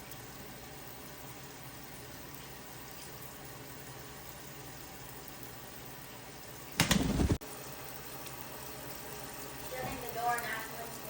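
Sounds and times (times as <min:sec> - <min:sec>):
water running from tap: 0:00.0 - 0:11.0.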